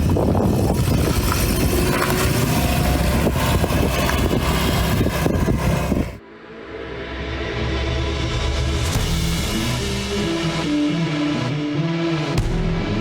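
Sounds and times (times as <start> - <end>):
car engine running: 0.0 - 6.2.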